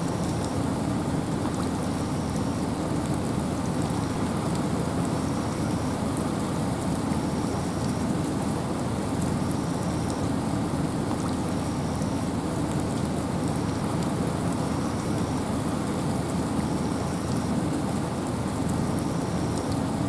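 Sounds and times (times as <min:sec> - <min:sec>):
rain falling: 0:00.0 - 0:20.0
wind: 0:00.0 - 0:20.0.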